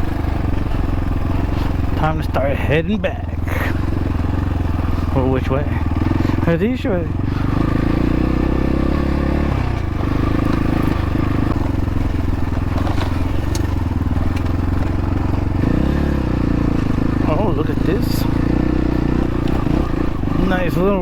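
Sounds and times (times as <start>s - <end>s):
dirt bike engine running: 0.0s - 21.0s
stones clicking against bike: 12.0s - 15.0s.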